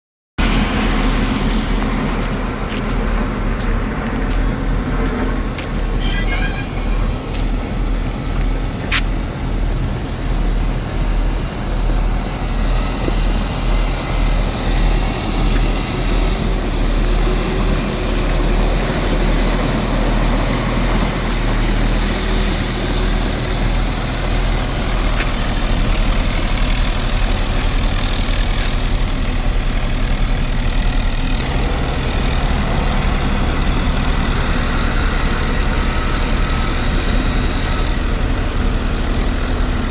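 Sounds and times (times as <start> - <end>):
heavy machine engine humming: 0.4 - 39.9.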